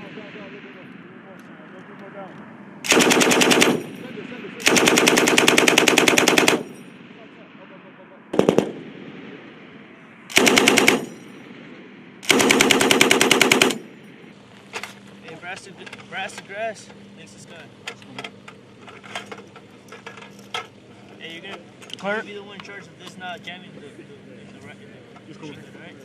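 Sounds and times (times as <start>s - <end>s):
machine gun automatic fire: 2.9s - 4.0s, 4.6s - 6.8s, 8.3s - 9.1s, 10.3s - 11.4s, 12.2s - 13.9s.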